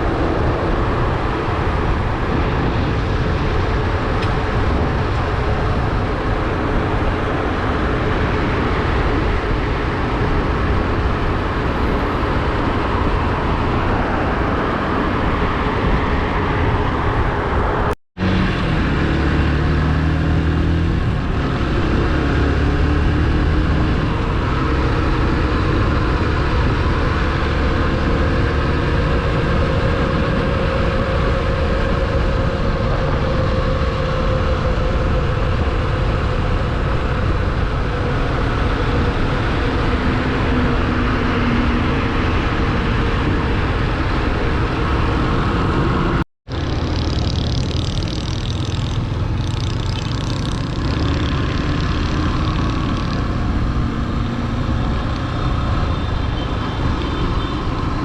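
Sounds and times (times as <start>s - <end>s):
wind rushing over microphone: 0.0s - 58.0s
motorcycle engine running: 46.5s - 57.5s.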